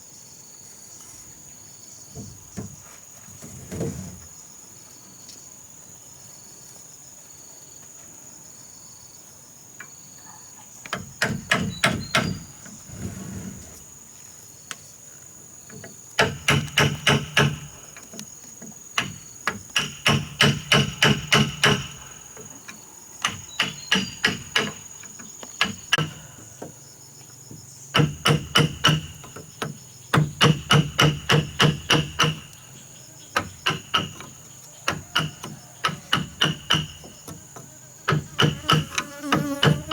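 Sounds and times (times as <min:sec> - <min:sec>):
high insect drone: 0:00.0 - 0:39.9
hammer driving nails: 0:10.9 - 0:12.5, 0:16.2 - 0:18.0, 0:19.0 - 0:22.4, 0:23.2 - 0:26.3, 0:27.9 - 0:32.6, 0:33.4 - 0:37.4, 0:38.1 - 0:39.9.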